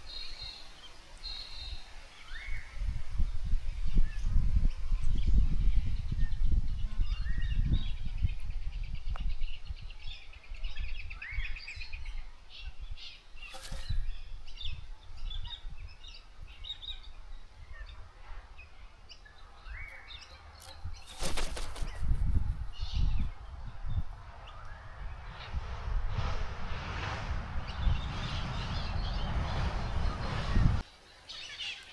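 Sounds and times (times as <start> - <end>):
birds chirping: 4.2 - 25.5
wings flapping: 13.5 - 14.1, 20.6 - 22.7.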